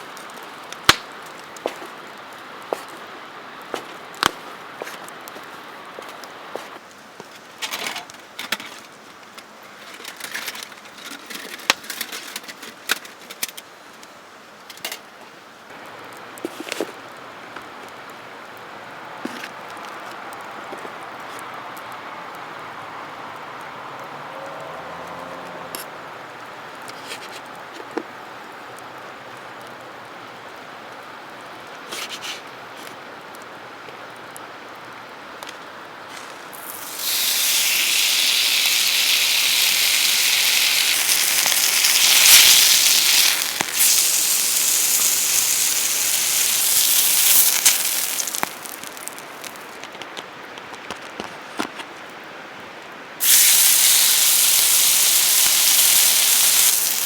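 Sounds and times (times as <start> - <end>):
loud steady hiss: 0.0 - 10.0, 28.2 - 49.9, 52.3 - 57.0
campfire crackling and popping: 0.0 - 12.0, 36.3 - 50.2, 53.2 - 57.0.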